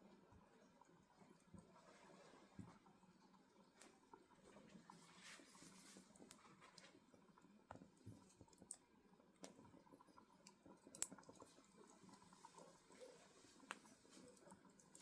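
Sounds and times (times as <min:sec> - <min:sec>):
firewood crackling and popping: 0:10.4 - 0:12.7.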